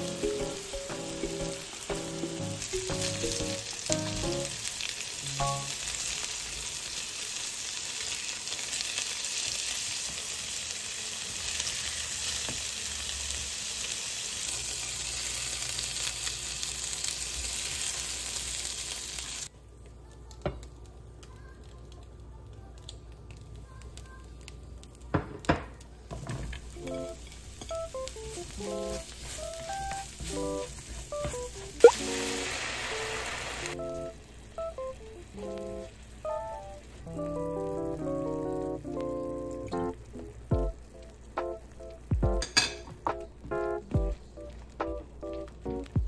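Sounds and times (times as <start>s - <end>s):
meat patties sizzling in oil: 0.0s - 19.5s, 26.0s - 42.9s.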